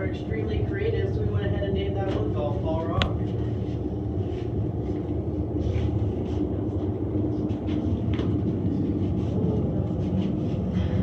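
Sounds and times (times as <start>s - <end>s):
cable car rumble: 0.0s - 11.0s
low steady hum: 0.1s - 9.7s.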